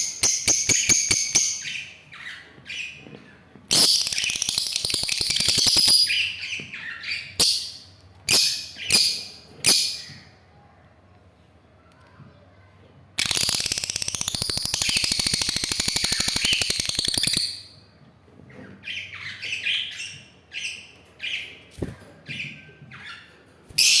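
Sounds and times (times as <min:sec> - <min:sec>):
bird chirps: 0:03.7 - 0:10.3, 0:13.2 - 0:17.8
bird rattling chatter: 0:13.2 - 0:17.5.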